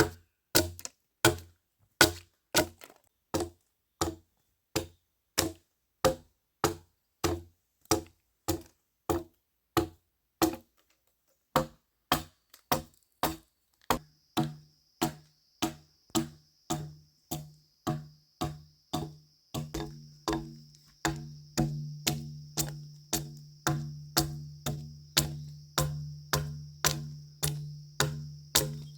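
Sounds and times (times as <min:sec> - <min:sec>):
tool striking wood: 0:11.6 - 0:28.9.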